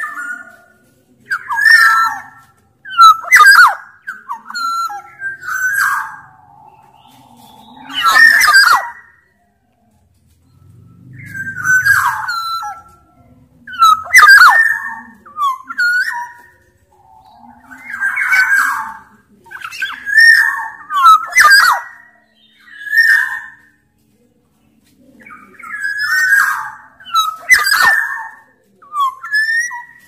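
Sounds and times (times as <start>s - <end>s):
bird calling: 0.0s - 9.3s, 10.6s - 23.8s, 25.2s - 30.0s.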